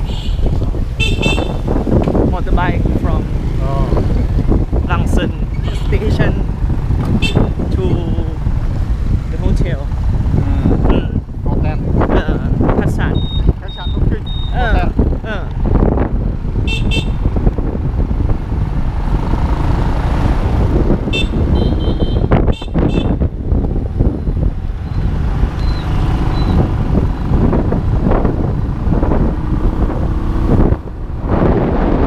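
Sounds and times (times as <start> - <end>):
motorbike engine: 2.8 - 32.0
short high-pitched beeps: 13.1 - 14.8, 25.6 - 26.6.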